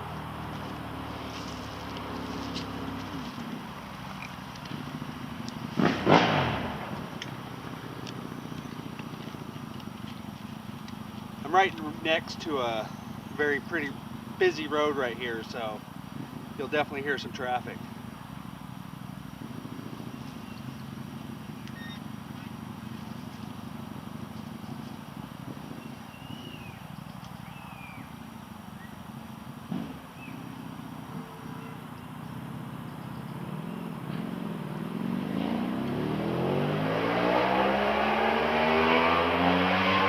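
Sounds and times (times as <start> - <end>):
vehicle passing by: 0.0 - 17.8, 29.4 - 40.0
road traffic rumble: 0.0 - 40.0.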